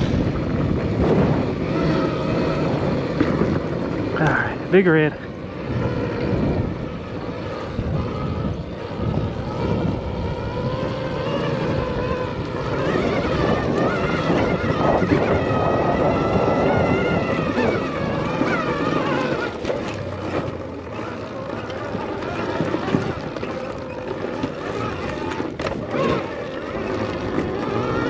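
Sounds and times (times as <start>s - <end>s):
electric motorbike motor whining: 0.0s - 28.0s
wind noise on microphone: 0.0s - 28.0s.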